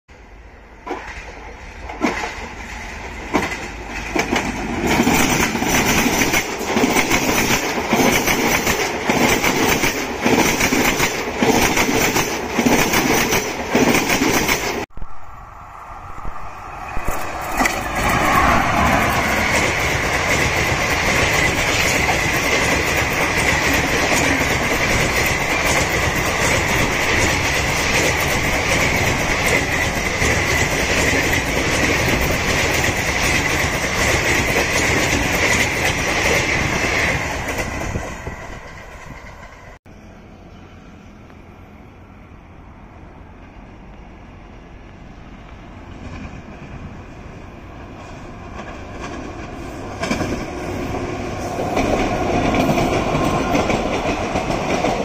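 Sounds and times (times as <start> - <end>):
passing train rush with whine: 0.1 - 55.0
train wheels clattering over joints: 0.8 - 14.9, 17.5 - 39.7, 48.5 - 55.0.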